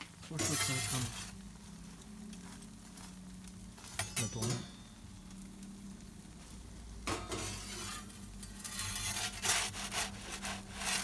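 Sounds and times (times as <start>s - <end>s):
pizza peel scraping oven floor: 0.3s - 1.3s, 7.3s - 11.0s.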